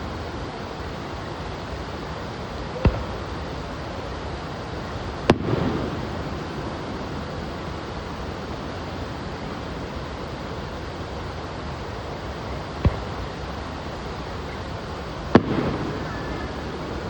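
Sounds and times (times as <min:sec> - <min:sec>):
steady rushing noise: 0:00.0 - 0:17.0
firework bangs: 0:02.8 - 0:03.8, 0:04.8 - 0:07.6, 0:12.2 - 0:17.0.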